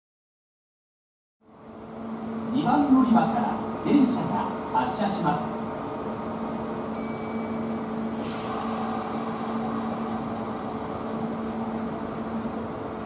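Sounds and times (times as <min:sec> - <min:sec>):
train humming: 0:01.4 - 0:13.0
air hissing: 0:08.1 - 0:13.0.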